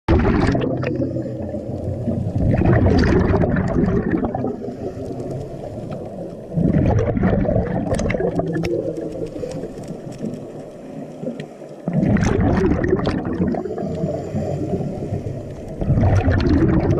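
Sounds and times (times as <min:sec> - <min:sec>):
underwater bubbling: 0:00.1 - 0:16.9
faint clicks and scrapes: 0:00.8 - 0:16.9.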